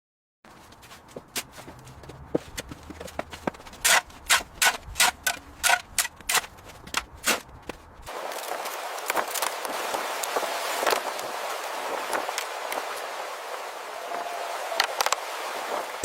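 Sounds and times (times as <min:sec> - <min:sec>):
steady hiss: 0:08.1 - 0:16.0.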